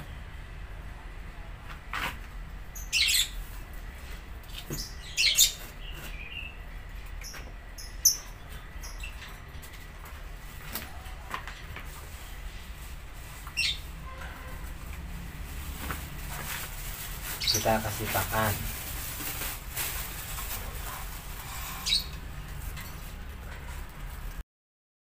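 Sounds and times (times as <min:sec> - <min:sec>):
small bird chirping: 0:04.7 - 0:06.6, 0:07.2 - 0:09.3, 0:21.6 - 0:22.2.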